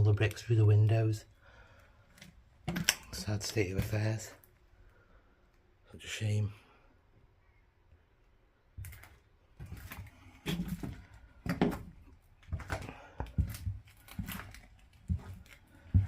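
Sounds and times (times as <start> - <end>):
footsteps on debris: 8.8 - 16.0.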